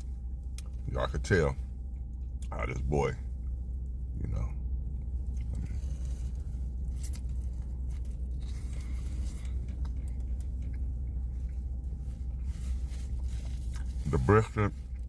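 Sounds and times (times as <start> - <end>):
steady low rumble: 0.0 - 15.0
person chewing: 5.3 - 12.5, 13.1 - 14.0.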